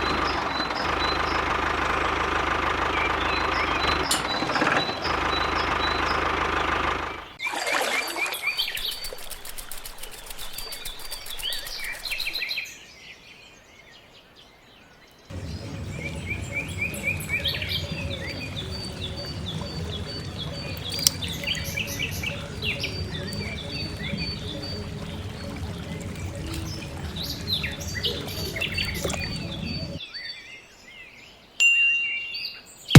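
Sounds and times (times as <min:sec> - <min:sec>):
birds chirping: 0:00.0 - 0:30.4
steady low hum: 0:15.3 - 0:30.0.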